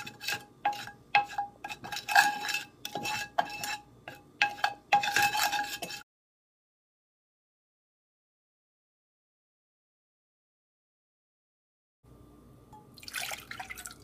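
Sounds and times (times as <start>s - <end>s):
utensil clinking against saucepan: 0.0s - 6.0s.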